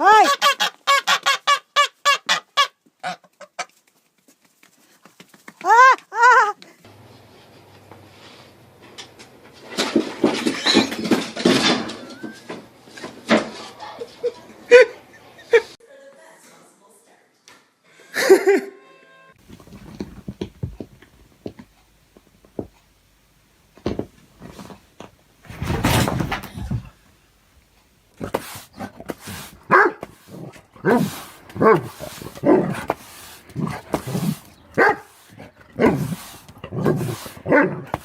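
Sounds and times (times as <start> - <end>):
dog barking: 29.7 - 30.1, 30.8 - 32.8, 34.8 - 35.2, 36.8 - 37.9.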